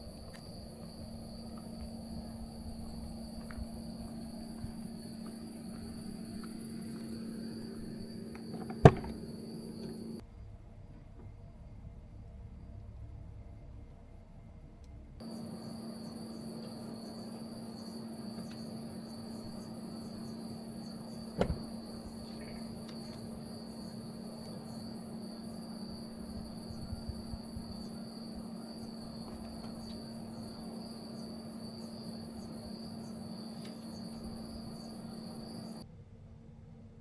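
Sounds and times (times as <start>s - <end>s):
insects trilling: 0.0s - 10.2s, 15.2s - 35.8s
sharp knock: 8.8s - 9.2s.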